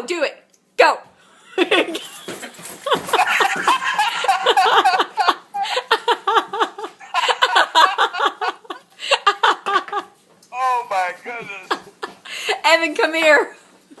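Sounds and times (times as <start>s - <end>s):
people laughing and giggling: 1.4s - 10.2s, 10.9s - 12.6s.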